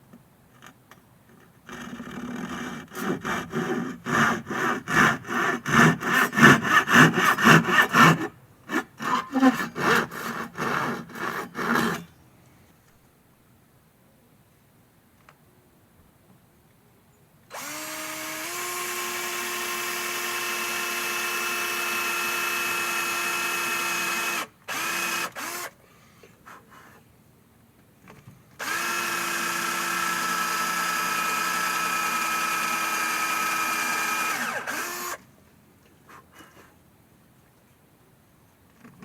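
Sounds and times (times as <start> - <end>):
electric drill motor whining: 17.5 - 25.7, 28.6 - 35.2.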